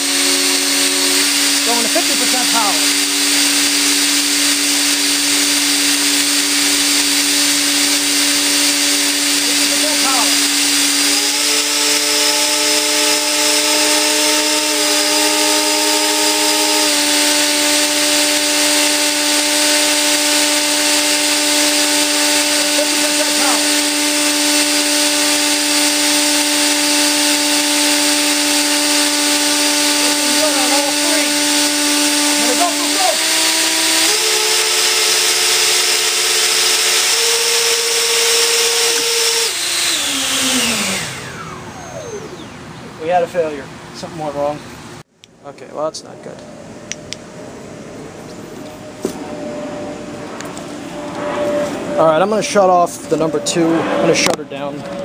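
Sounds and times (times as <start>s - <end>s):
electric fans whining: 0.0s - 55.0s
rush of air: 47.5s - 52.1s.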